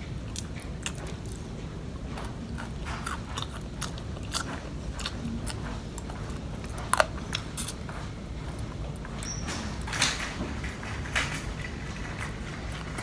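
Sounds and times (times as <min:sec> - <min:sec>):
person chewing crispy food: 0:00.1 - 0:09.2.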